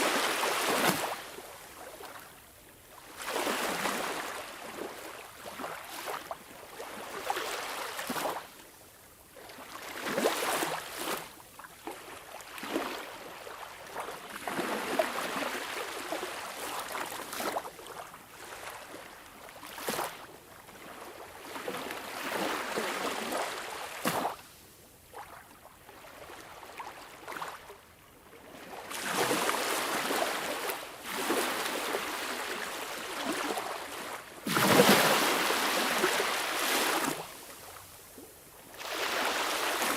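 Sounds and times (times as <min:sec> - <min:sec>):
sea waves washing: 0:38.7 - 0:39.9.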